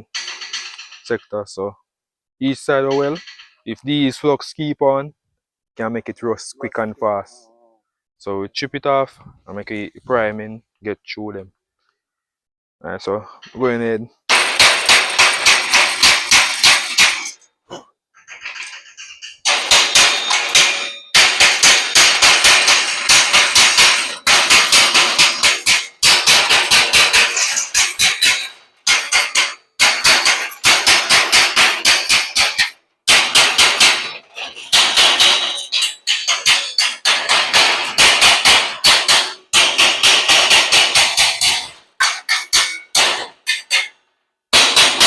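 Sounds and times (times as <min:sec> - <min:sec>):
hammer striking metal: 0:00.0 - 0:01.0, 0:02.9 - 0:03.6, 0:14.3 - 0:17.4, 0:19.4 - 0:45.0.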